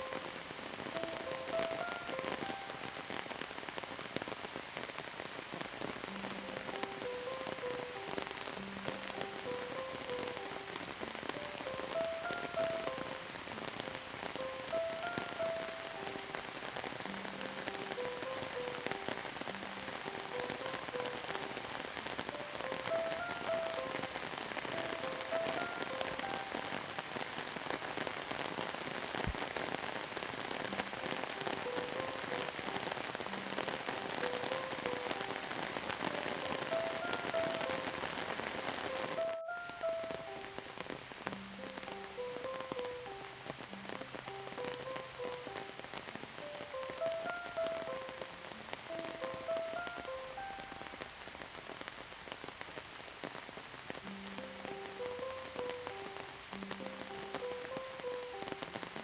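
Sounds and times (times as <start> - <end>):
soft slow melody: 0.0 - 52.6, 53.4 - 59.0
rain pattering on surfaces: 0.0 - 59.0.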